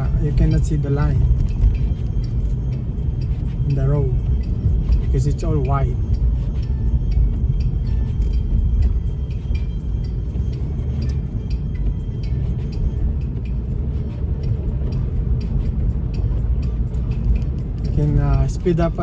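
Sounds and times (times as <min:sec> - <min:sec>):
car driving on snowy road: 0:00.0 - 0:19.0.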